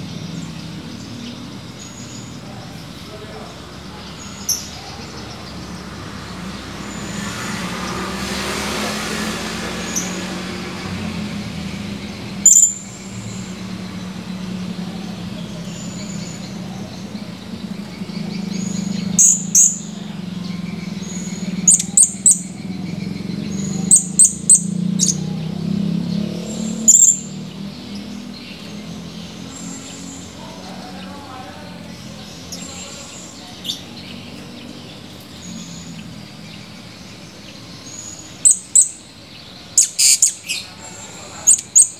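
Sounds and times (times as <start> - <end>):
parrot high-pitched calls: 12.4 - 12.9, 39.8 - 40.7.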